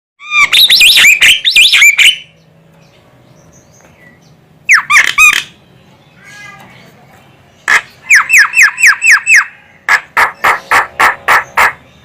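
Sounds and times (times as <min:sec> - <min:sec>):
myna bird whistled calls: 0:00.2 - 0:02.3, 0:08.0 - 0:09.6.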